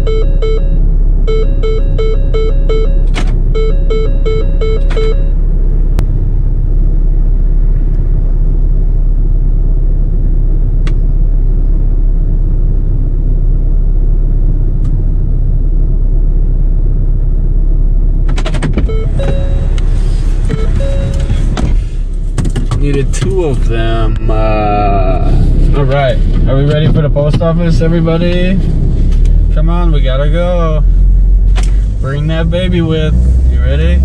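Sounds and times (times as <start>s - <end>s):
car engine idling: 0.0s - 34.0s
car door clicks: 3.0s - 3.4s, 18.3s - 23.4s.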